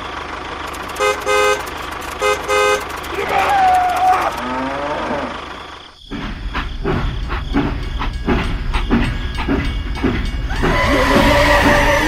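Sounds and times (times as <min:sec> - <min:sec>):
steam train chugging: 0:00.0 - 0:04.4, 0:05.2 - 0:12.0.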